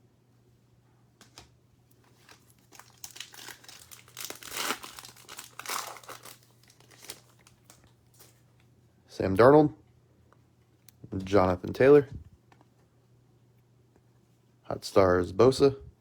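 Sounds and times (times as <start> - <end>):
foil wrapper crinkling and tearing: 2.0 - 8.4.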